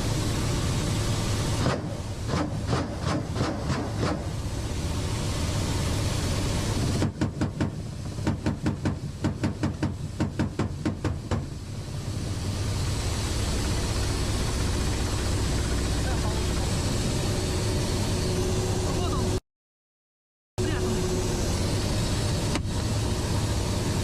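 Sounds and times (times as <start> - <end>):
helicopter drone: 0.0 - 7.1, 11.5 - 19.4, 20.6 - 24.0.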